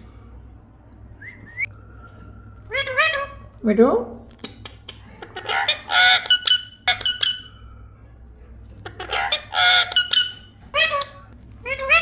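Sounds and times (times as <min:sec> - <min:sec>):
parrot chirps: 0:02.0 - 0:03.5, 0:05.0 - 0:07.8, 0:08.7 - 0:12.0
parrot harsh squawk: 0:02.7 - 0:03.5, 0:05.2 - 0:07.6, 0:08.8 - 0:12.0.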